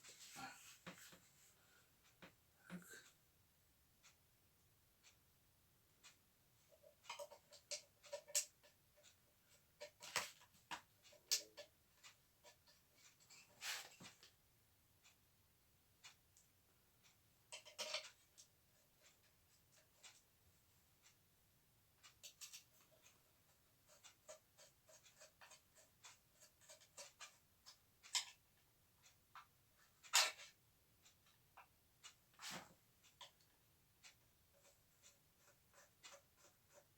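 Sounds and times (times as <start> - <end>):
parts clicking and tapping: 6.8 - 9.2, 9.8 - 13.4.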